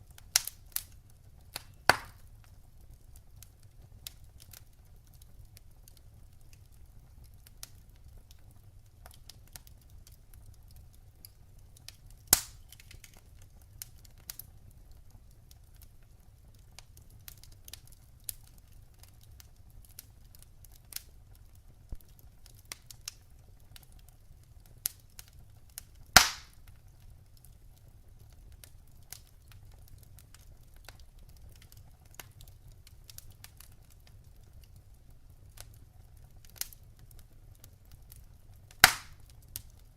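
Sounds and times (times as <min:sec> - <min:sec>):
wood fire crackling: 0:00.0 - 0:39.9
loud sharp pops: 0:01.6 - 0:02.2, 0:12.3 - 0:12.9, 0:26.2 - 0:26.6, 0:38.8 - 0:39.2.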